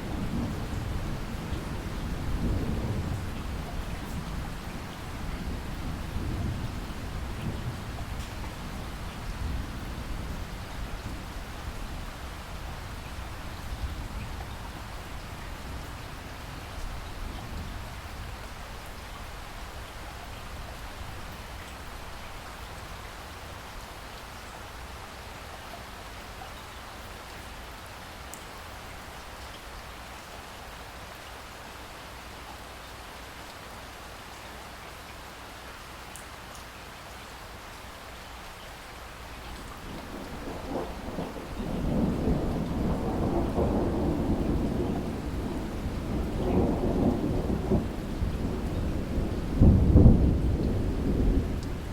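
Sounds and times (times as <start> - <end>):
heavy rain hissing: 39.0 - 51.9
thunder rumbling: 39.6 - 51.9.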